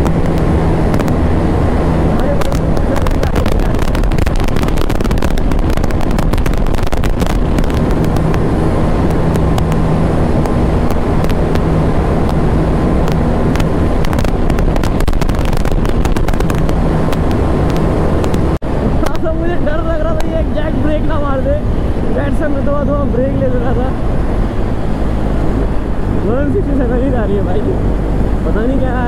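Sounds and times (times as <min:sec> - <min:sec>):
motorcycle engine at steady revs: 0:00.0 - 0:19.3
wind buffeting on microphone: 0:00.0 - 0:29.0.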